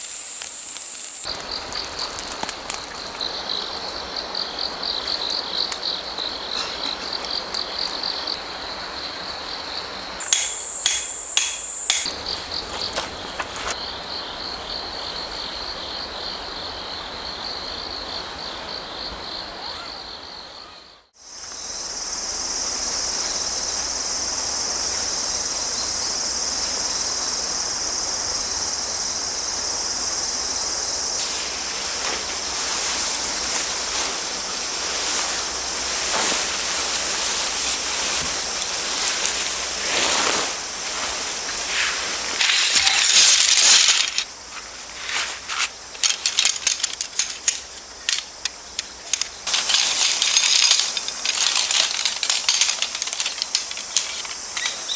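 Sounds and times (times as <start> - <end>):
crickets chirping: 0.0 - 54.9
creek running: 1.2 - 15.8, 29.9 - 54.9
sharp clicks and clinks: 10.2 - 12.2, 42.4 - 44.3, 45.9 - 54.9.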